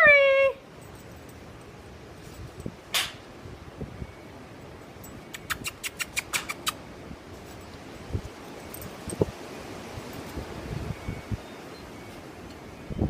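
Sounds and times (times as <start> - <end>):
wind noise on microphone: 2.0 - 4.4, 5.0 - 13.0
sharp clicks: 5.3 - 6.8.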